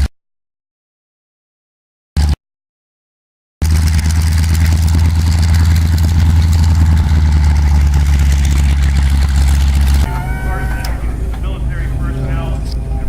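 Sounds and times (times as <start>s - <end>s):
aircraft engine idling: 3.6s - 13.0s.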